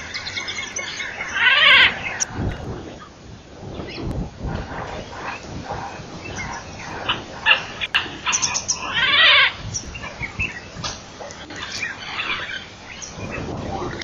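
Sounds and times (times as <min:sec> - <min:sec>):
loud harsh bird call: 0:00.0 - 0:02.3, 0:06.2 - 0:09.7
wild birds chirping: 0:00.0 - 0:14.0.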